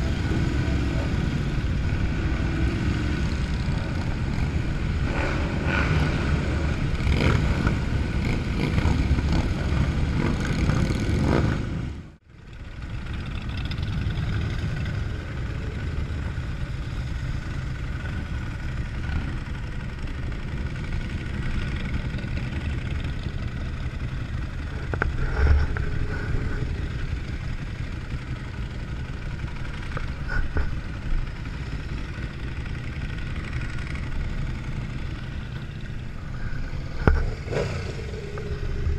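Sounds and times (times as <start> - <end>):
motorcycle engines running: 0.0 - 38.9
road noise: 0.0 - 38.9.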